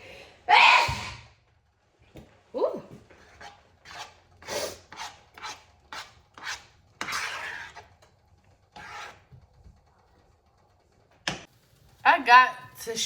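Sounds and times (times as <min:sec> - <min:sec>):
utensil scraping a pot: 0:03.0 - 0:09.4.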